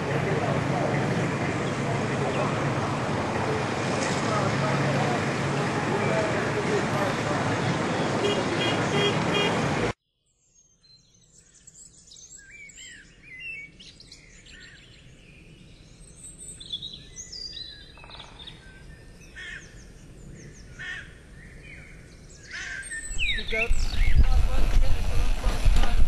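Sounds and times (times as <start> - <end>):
small birds chirping and singing: 10.1 - 24.8.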